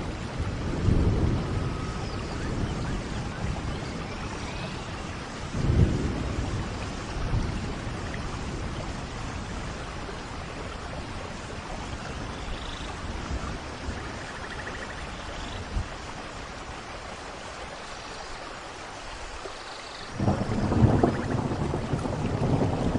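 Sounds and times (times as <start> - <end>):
low thunder rumble: 0.0 - 15.1, 20.1 - 22.9
rain falling in forest: 0.0 - 22.9.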